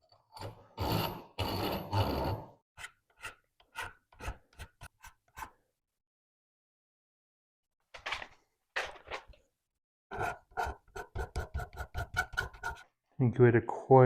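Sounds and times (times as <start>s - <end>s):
hand file stroking metal: 0.3s - 5.6s, 10.1s - 12.9s.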